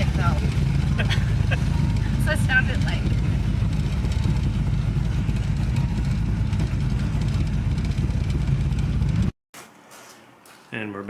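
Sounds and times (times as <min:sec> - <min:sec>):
car engine rumbling: 0:00.0 - 0:09.3.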